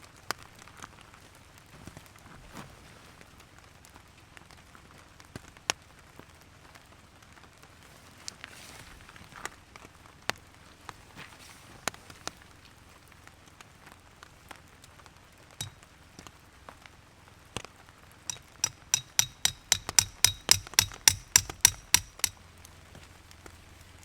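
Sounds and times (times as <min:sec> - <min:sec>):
hammer striking metal: 0:18.3 - 0:22.4
light taps: 0:18.3 - 0:22.4.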